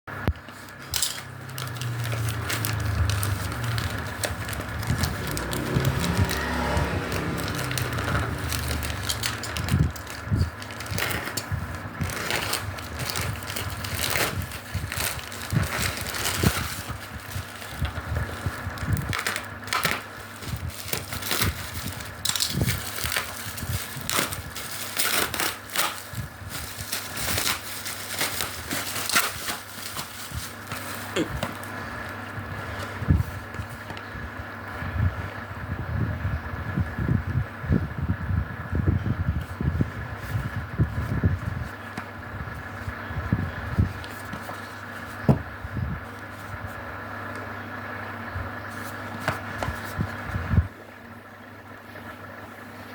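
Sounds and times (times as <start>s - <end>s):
steady low hum: 0.1s - 52.9s
packaging crinkling and clicking: 0.3s - 32.2s.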